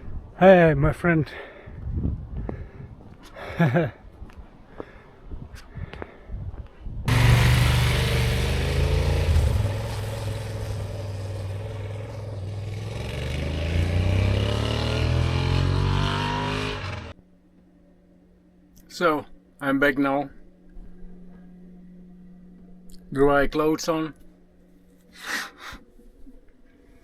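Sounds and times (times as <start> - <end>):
vehicle engine accelerating: 7.1 - 17.2.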